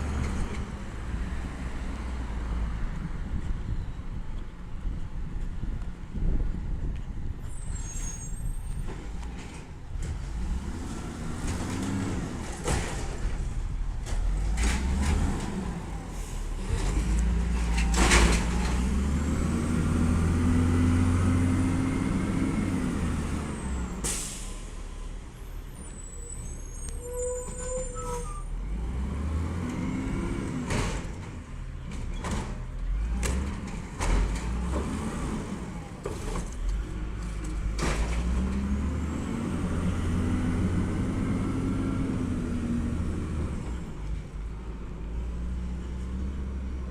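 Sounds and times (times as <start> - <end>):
air brake hisses: 24.0 - 24.7.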